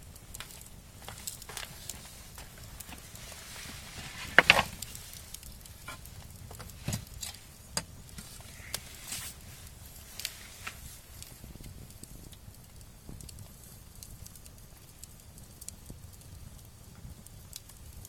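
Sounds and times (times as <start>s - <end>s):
firewood crackling: 0.0s - 18.0s
wood clattering: 3.8s - 4.9s.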